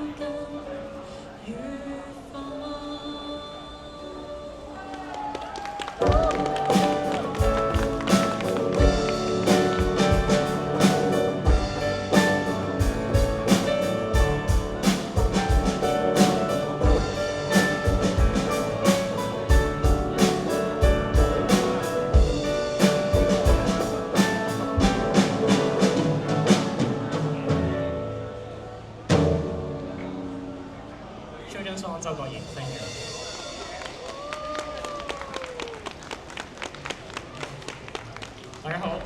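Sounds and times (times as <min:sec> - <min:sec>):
drum kit beating: 0:06.0 - 0:30.1
live rock band playing: 0:06.0 - 0:30.9.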